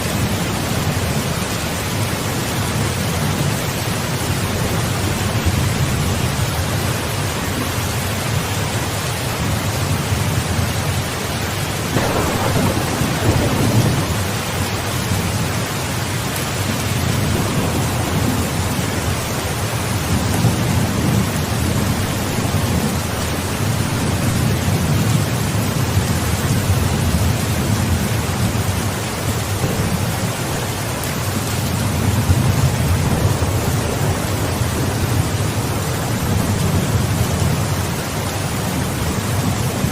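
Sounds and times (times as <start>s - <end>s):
steady rain: 0.0s - 39.9s
thunder rumbling: 11.7s - 39.9s.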